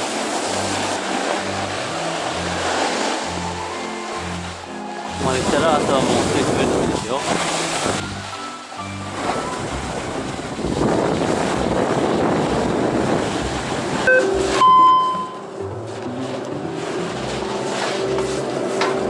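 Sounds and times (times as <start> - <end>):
wind rushing over camera: 9.4 - 14.1
short beep-like tone: 14.1 - 15.5.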